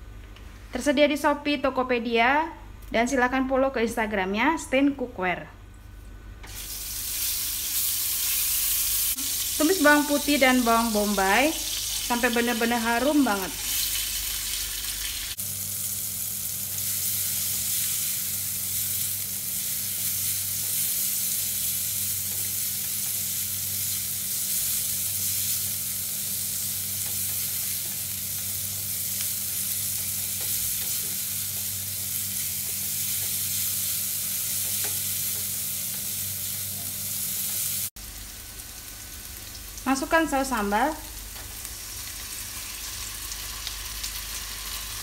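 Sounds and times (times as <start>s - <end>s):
garlic and onion sizzling: 6.4s - 45.0s.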